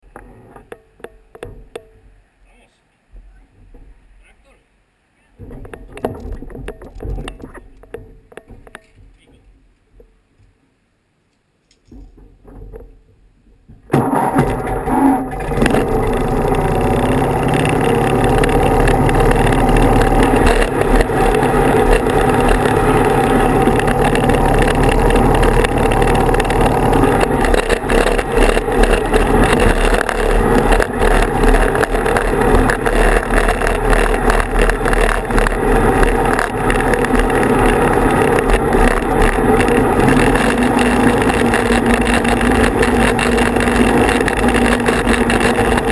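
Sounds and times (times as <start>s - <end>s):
riding tractor engine running: 13.8s - 45.9s.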